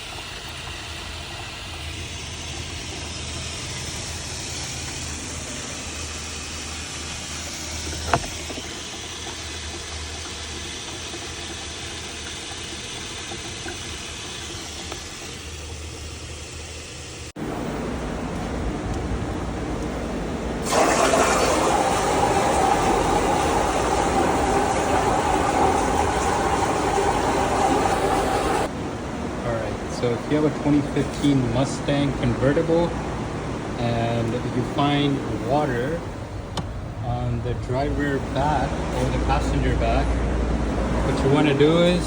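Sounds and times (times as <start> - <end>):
motor running: 0.0 - 28.7.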